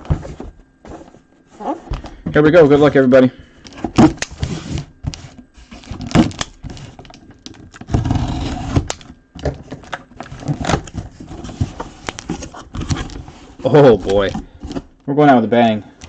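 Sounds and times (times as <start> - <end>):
box packaging clicks and scrapes: 3.7 - 15.0.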